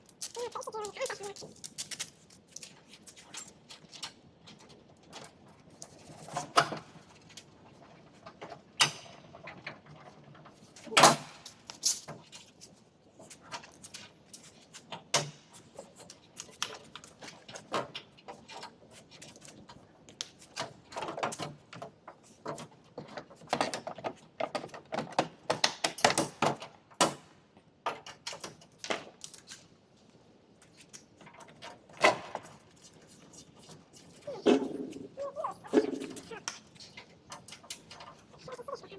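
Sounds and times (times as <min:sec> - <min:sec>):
tools and metal parts clicking: 0:00.0 - 0:04.2, 0:10.6 - 0:14.6, 0:27.9 - 0:29.7.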